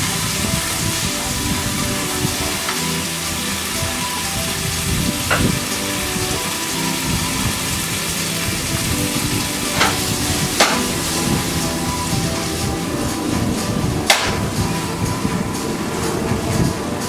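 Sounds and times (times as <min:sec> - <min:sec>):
vegetables sizzling in a pan: 0:00.0 - 0:16.0
pan knocking on burner: 0:05.2 - 0:06.5, 0:07.5 - 0:12.7, 0:13.4 - 0:14.9.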